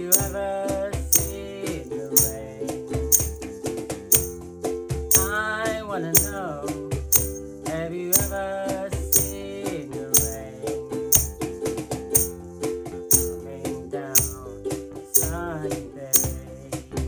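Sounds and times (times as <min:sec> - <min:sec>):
drum beat: 0:00.0 - 0:00.4, 0:01.2 - 0:01.4, 0:03.2 - 0:03.4, 0:04.1 - 0:04.4, 0:05.1 - 0:05.4, 0:06.2 - 0:06.4, 0:07.2 - 0:07.4, 0:08.2 - 0:08.4, 0:09.2 - 0:09.4, 0:10.2 - 0:10.4, 0:11.2 - 0:11.4, 0:12.2 - 0:12.4, 0:13.1 - 0:13.4, 0:14.2 - 0:14.4, 0:15.2 - 0:15.4, 0:16.2 - 0:16.4
shaker hits: 0:00.0 - 0:00.4, 0:01.1 - 0:02.4, 0:03.1 - 0:03.4, 0:04.1 - 0:04.4, 0:05.1 - 0:05.4, 0:06.2 - 0:06.4, 0:07.2 - 0:07.4, 0:08.2 - 0:08.5, 0:09.1 - 0:09.5, 0:10.2 - 0:10.4, 0:11.2 - 0:11.4, 0:12.2 - 0:12.4, 0:13.1 - 0:13.4, 0:14.2 - 0:14.5, 0:15.2 - 0:15.5, 0:16.2 - 0:16.4.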